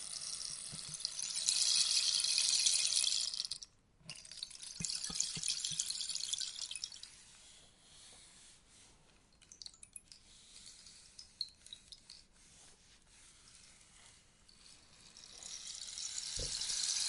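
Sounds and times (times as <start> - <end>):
rainstick pellets trickling: 0.0 - 7.1, 15.0 - 17.0.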